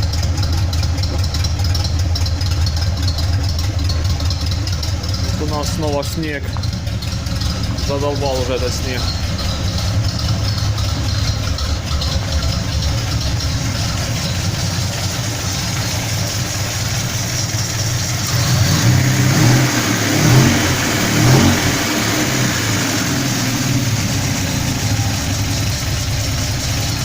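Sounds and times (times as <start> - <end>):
car engine idling: 0.0 - 27.0
engine revving: 3.0 - 27.0.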